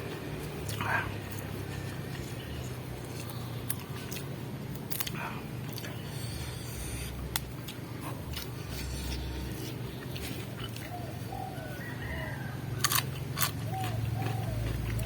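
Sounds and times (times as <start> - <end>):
chewing raw vegetables: 0.0 - 15.0
low steady hum: 0.0 - 15.0
dove cooing: 10.8 - 12.6, 13.6 - 15.0.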